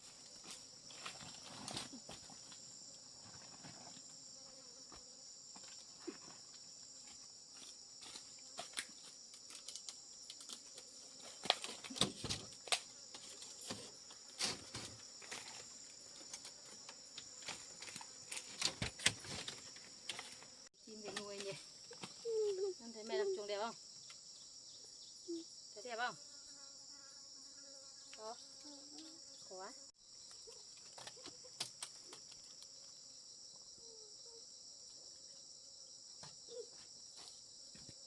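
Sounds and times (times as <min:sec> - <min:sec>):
high-pitched insect chorus: 0:14.4 - 0:38.0.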